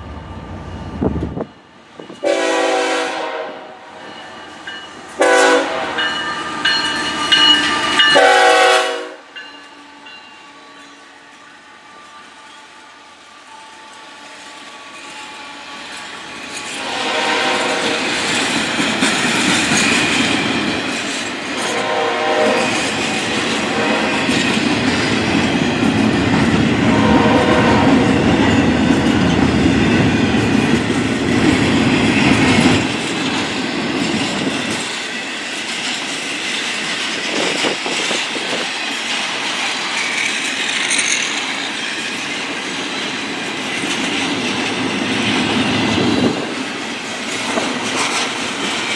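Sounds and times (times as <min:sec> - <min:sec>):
train rumble: 0:00.0 - 0:12.2, 0:13.0 - 0:48.9
train horn chords: 0:02.2 - 0:04.1, 0:05.2 - 0:06.7, 0:07.7 - 0:13.2, 0:16.7 - 0:18.1, 0:21.6 - 0:22.9, 0:23.5 - 0:24.4, 0:26.8 - 0:28.4.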